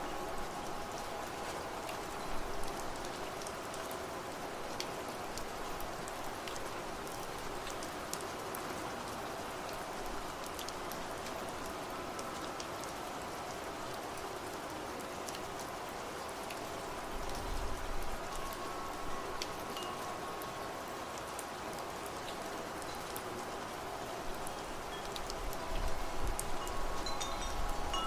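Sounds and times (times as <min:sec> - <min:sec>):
wind chimes ringing: 0:00.0 - 0:03.4, 0:18.2 - 0:21.4, 0:24.9 - 0:28.0
rain falling: 0:00.0 - 0:28.0.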